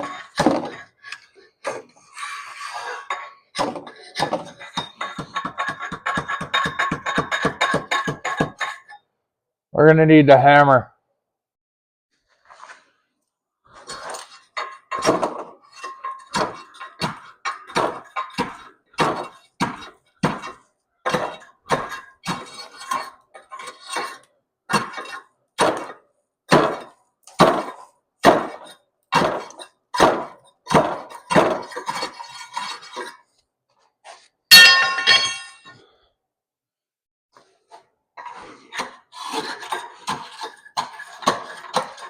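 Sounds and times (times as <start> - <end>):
metallic clang: 34.5 - 35.7.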